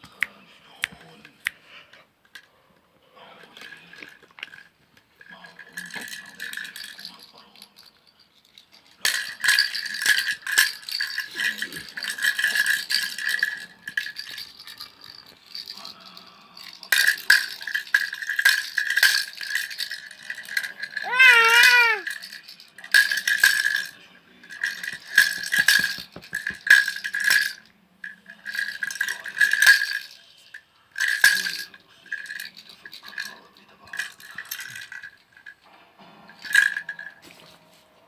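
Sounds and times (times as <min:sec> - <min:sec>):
rattle being shaken: 0:03.6 - 0:35.5, 0:36.4 - 0:37.2.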